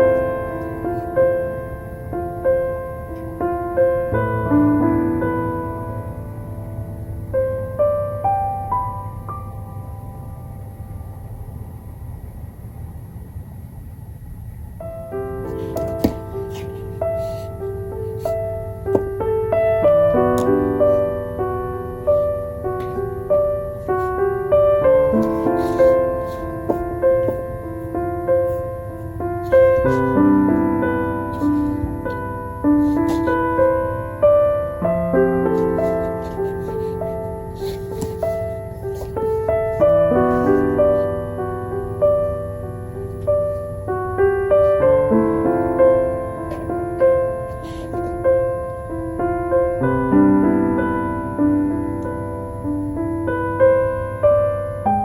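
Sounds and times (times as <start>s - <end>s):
soft solo piano music: 0.0s - 11.2s, 14.8s - 55.0s
candle crackling and hissing: 15.1s - 42.5s.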